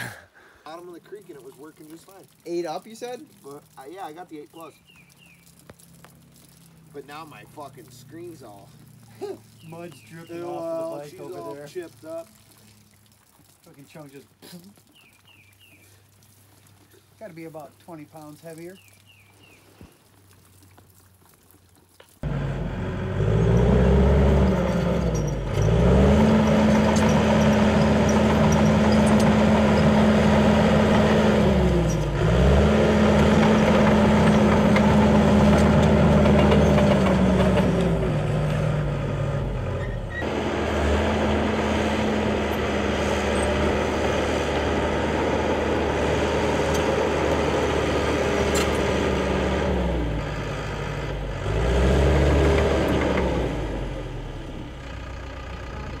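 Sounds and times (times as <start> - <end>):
small motorbike engine revving: 22.2 - 54.3.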